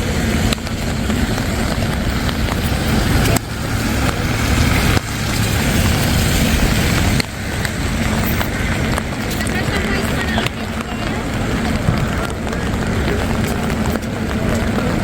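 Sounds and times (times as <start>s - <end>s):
motor vehicle rumble: 0.0s - 15.0s.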